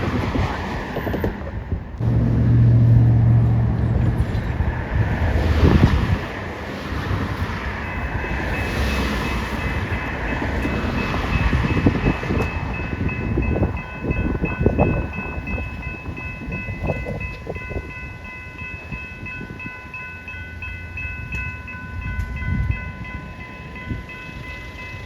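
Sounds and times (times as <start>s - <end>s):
train wheels rumbling on rails: 0.0s - 25.0s
level crossing warning bell: 2.0s - 5.9s, 6.8s - 25.0s.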